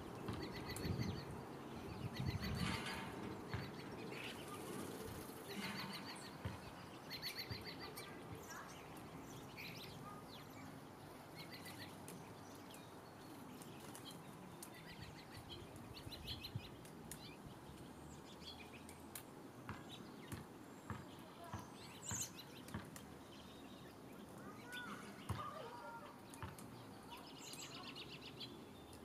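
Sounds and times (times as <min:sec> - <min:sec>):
small birds chirping: 0:00.0 - 0:29.0
faint clicks: 0:16.8 - 0:17.9.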